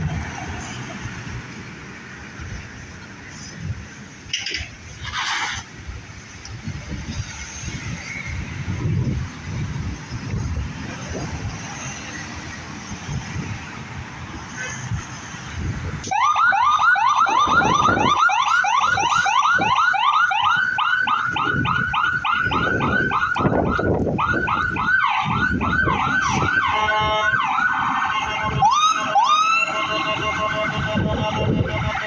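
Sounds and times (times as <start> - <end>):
engine and road rumble: 0.0 - 32.0
siren yelping: 16.0 - 32.0.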